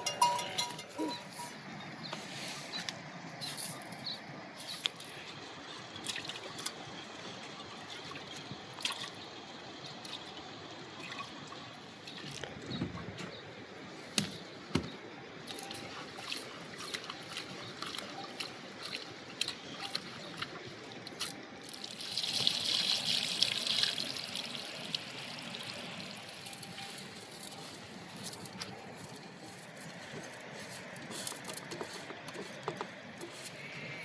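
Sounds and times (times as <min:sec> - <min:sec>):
rush of water: 0:00.0 - 0:34.0
sharp drips: 0:15.4 - 0:30.3.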